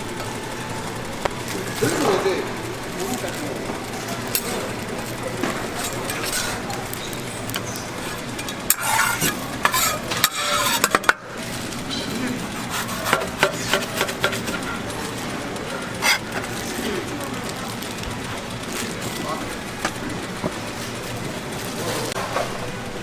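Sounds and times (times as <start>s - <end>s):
food sizzling on a griddle: 4.4s - 18.0s
metal spatula scraping and tapping: 5.4s - 11.2s, 11.9s - 14.9s, 16.0s - 16.7s.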